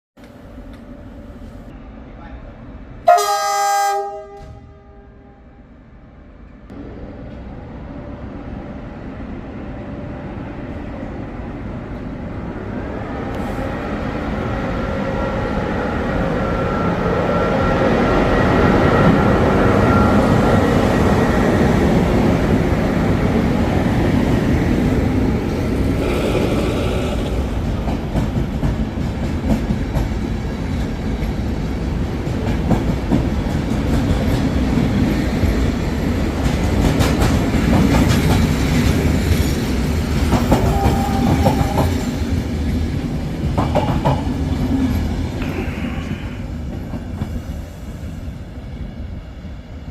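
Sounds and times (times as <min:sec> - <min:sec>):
train wheels rumbling on track: 0:06.4 - 0:49.9
clickety-clack over rail joints: 0:26.0 - 0:45.8, 0:46.6 - 0:47.6.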